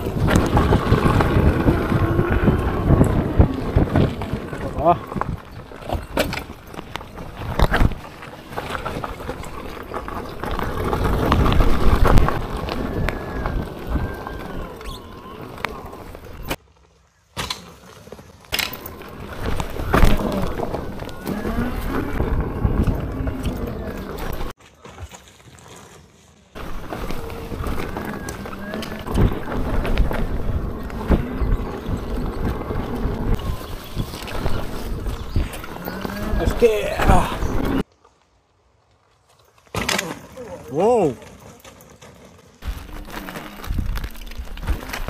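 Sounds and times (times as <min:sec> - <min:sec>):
wind buffeting microphone: 0:00.0 - 0:16.6, 0:18.9 - 0:24.5, 0:26.6 - 0:37.8, 0:42.6 - 0:45.0
knocks and clicks over rough ground: 0:00.0 - 0:45.0
electric motor whine: 0:10.7 - 0:16.6.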